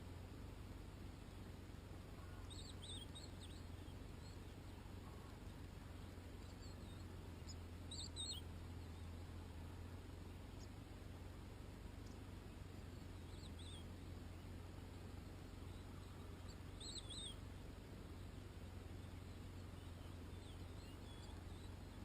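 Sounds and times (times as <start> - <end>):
steady low background noise: 0.0 - 22.0
goldfinch twittering calls: 1.2 - 9.4, 11.9 - 22.0.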